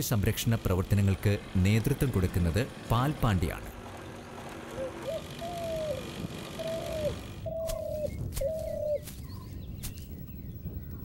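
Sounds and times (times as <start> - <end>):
bird calling: 4.7 - 11.0.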